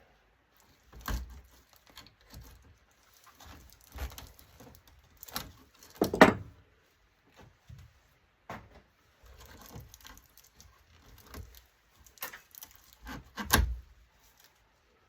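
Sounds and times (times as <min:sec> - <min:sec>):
parts clattering: 0:05.2 - 0:06.6.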